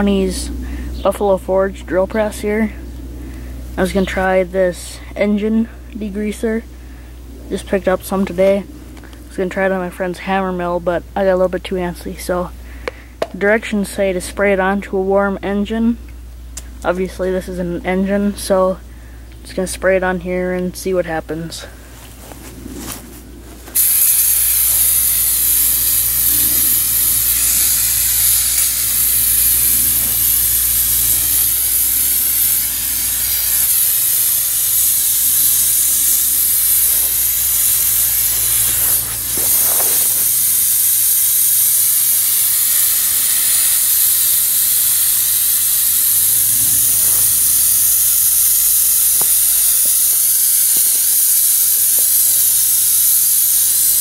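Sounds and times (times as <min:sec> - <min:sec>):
aerosol can spraying hiss: 0:23.7 - 0:54.0.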